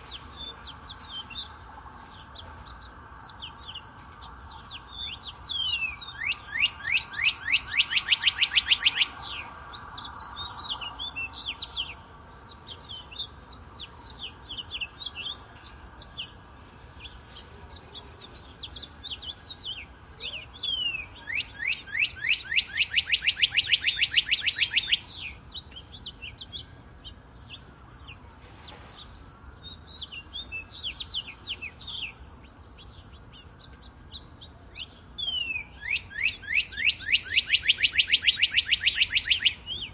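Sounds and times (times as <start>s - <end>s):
songbirds chirping: 0.0s - 39.9s
rapid bird trill: 4.5s - 16.4s, 18.4s - 28.2s, 29.7s - 39.9s.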